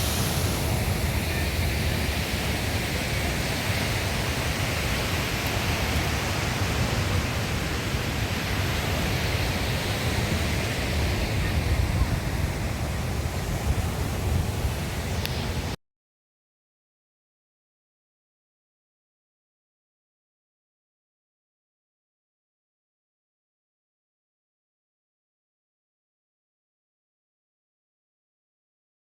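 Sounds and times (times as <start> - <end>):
surf on rocky shore: 0.0 - 15.8.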